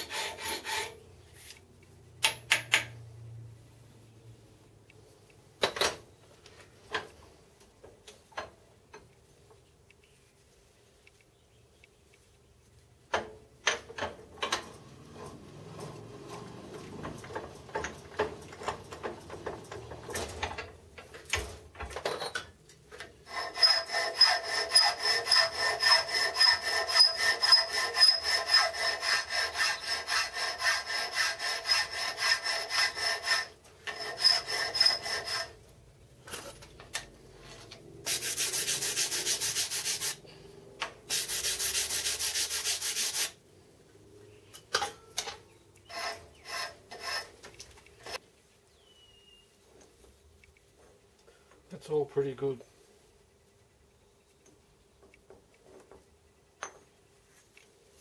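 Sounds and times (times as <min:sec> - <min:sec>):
hand file rasping on metal: 0:00.0 - 0:01.1, 0:23.2 - 0:35.6, 0:38.1 - 0:40.2, 0:41.1 - 0:43.4, 0:45.8 - 0:48.2.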